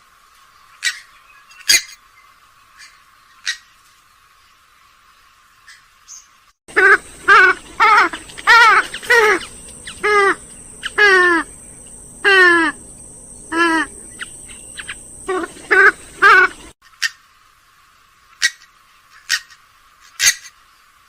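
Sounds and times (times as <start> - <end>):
bird giving wavering calls: 6.7 - 17.2.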